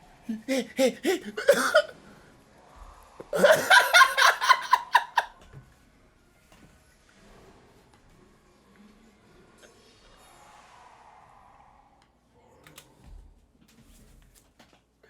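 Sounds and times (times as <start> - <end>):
person laughing: 0.3 - 1.9, 3.3 - 5.3.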